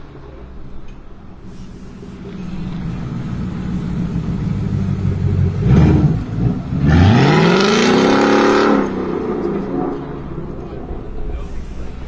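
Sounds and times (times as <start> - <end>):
car engine revving: 1.9 - 11.4.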